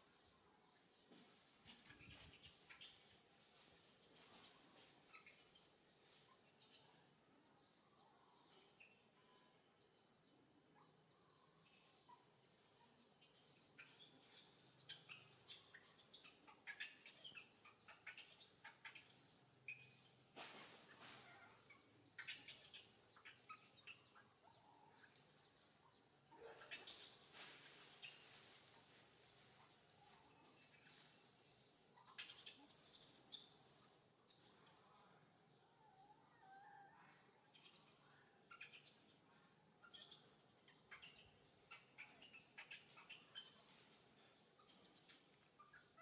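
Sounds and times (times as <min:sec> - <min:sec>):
faint bird chirps: 0:00.0 - 0:46.0
soft rustles: 0:00.9 - 0:07.0, 0:20.1 - 0:21.6, 0:26.6 - 0:31.8.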